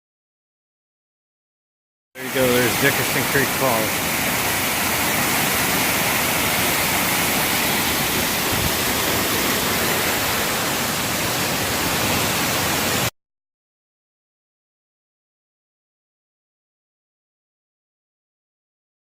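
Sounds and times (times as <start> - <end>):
waterfall rushing: 2.2 - 13.1.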